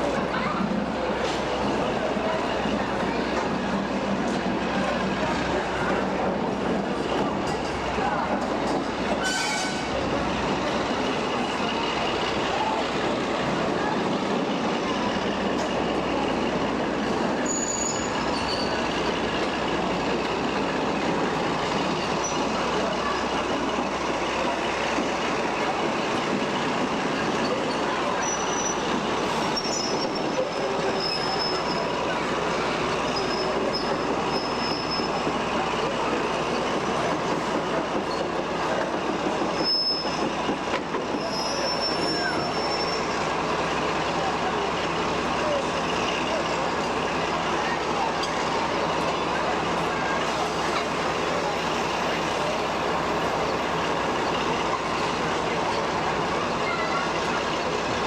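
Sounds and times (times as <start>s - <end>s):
train running on rails: 0.0s - 58.0s
wheel squeals: 17.4s - 19.2s, 26.7s - 32.2s, 33.0s - 35.5s, 39.2s - 43.3s.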